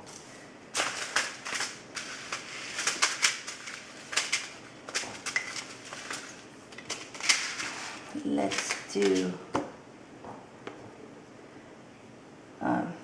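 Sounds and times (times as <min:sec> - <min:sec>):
seed packet crinkling: 0:00.8 - 0:09.3.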